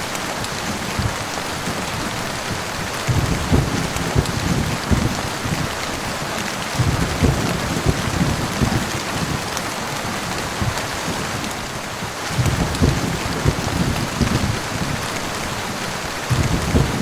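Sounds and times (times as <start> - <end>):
heavy rain falling: 0.0 - 17.0
low thuds: 3.1 - 5.7, 6.8 - 9.4, 12.4 - 15.0, 16.3 - 17.0.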